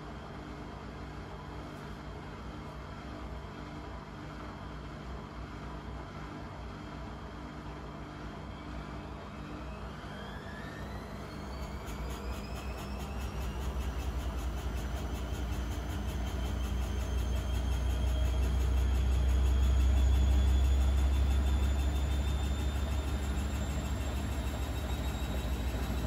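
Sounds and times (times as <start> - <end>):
washing machine hum and drum rumble: 0.0 - 26.0
drum motor whine rising in pitch: 9.2 - 26.0.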